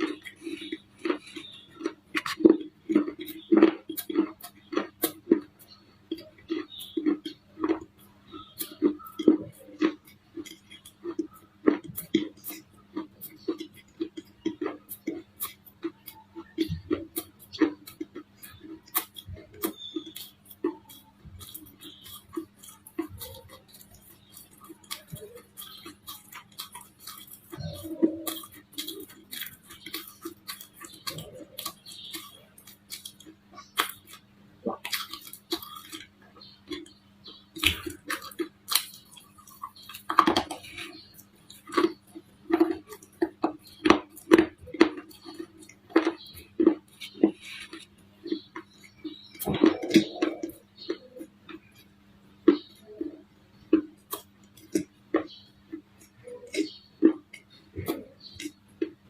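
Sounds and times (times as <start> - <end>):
clay bars cracking and crunching: 16.9 - 51.1.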